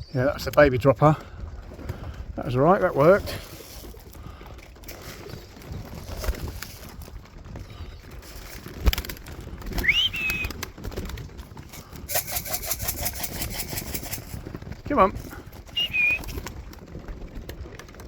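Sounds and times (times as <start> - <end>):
quick run of clicks: 4.9 - 18.0
short rising whistle: 9.8 - 10.5, 15.8 - 16.2.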